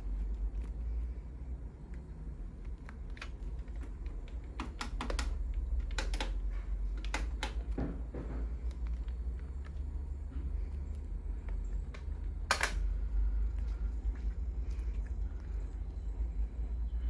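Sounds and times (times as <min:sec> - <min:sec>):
steady low hum: 0:00.0 - 0:17.0
irregular clicks and taps: 0:02.6 - 0:07.9.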